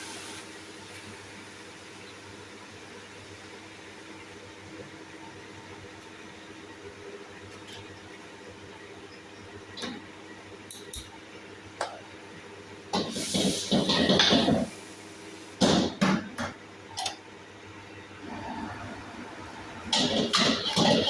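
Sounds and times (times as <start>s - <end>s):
cookware clattering: 13.7s - 14.7s, 19.9s - 21.0s.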